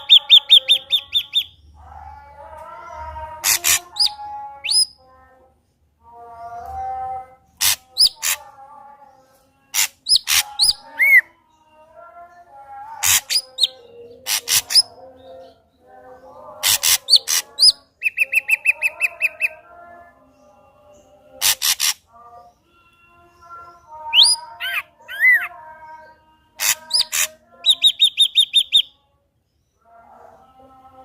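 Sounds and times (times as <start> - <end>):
bird singing with clicks and whistles: 0.0 - 1.6, 3.4 - 5.0, 7.6 - 8.4, 9.7 - 11.3, 13.0 - 15.6, 16.6 - 19.6, 23.2 - 25.8, 26.6 - 29.0.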